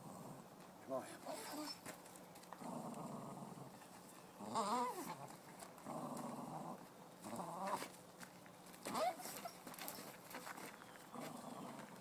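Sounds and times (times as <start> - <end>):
dog growling low: 0.0 - 0.4, 2.6 - 3.8, 4.4 - 7.8, 11.1 - 12.0
dog whining: 1.3 - 1.9, 4.4 - 5.2, 8.9 - 9.6.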